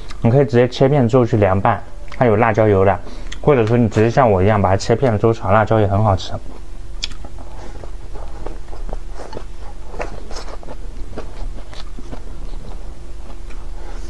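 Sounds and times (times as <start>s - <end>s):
person chewing food: 6.5s - 14.0s
mouth clicks: 7.0s - 7.2s.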